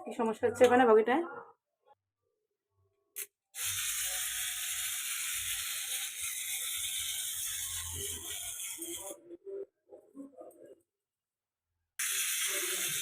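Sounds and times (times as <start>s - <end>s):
wind-up toy motor whirring: 3.6s - 9.2s, 12.0s - 13.0s.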